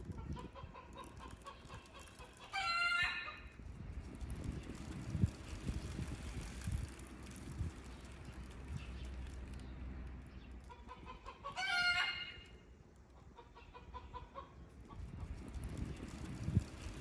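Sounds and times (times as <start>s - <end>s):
chickens clucking: 0.1s - 3.5s, 10.6s - 15.4s
chicken calling loudly: 2.2s - 3.4s, 10.8s - 12.6s.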